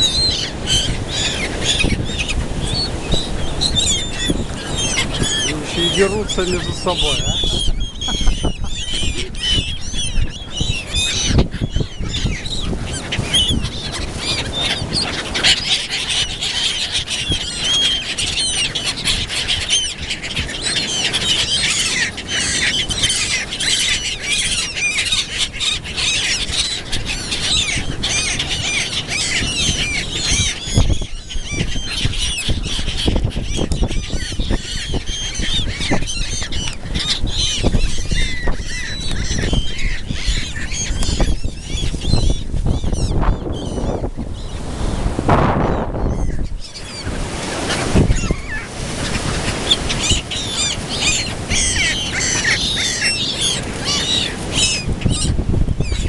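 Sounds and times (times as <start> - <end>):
gulls squawking: 0.0 - 56.0.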